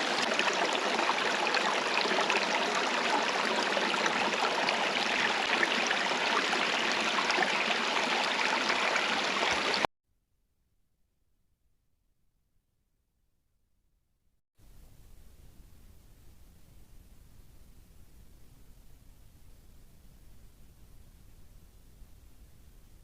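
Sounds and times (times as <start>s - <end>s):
running water rushing: 0.0s - 9.9s
small water splashes: 0.0s - 9.9s.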